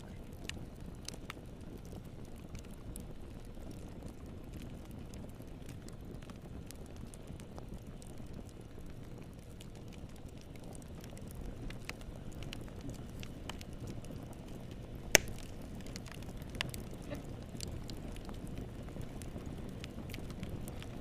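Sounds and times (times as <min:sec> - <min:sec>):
fire crackling snaps: 0:00.0 - 0:21.0
low rumble of flames: 0:00.0 - 0:21.0
loud fire pop: 0:15.1 - 0:15.6.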